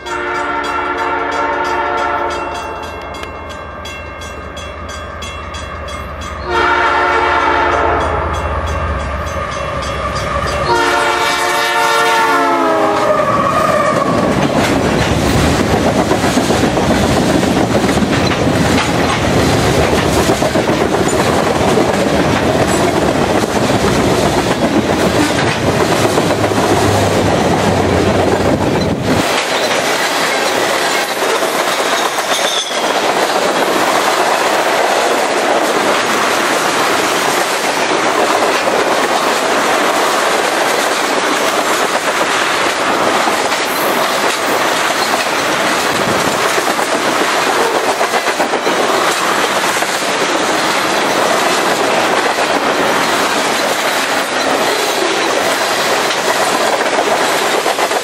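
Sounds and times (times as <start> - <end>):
steel wheels clattering over rail joints: 12.6 - 58.0.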